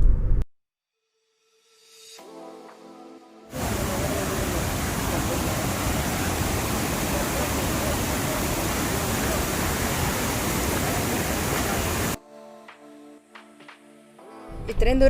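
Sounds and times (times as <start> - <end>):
steady rushing noise: 3.6 - 12.2
faint soft music: 12.2 - 15.0.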